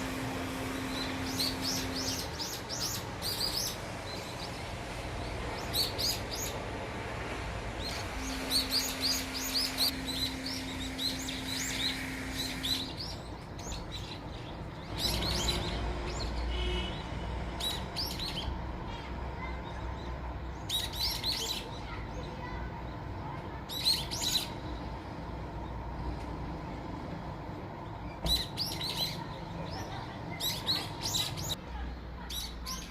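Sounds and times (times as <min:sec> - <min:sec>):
small birds chirping: 0:00.0 - 0:32.9.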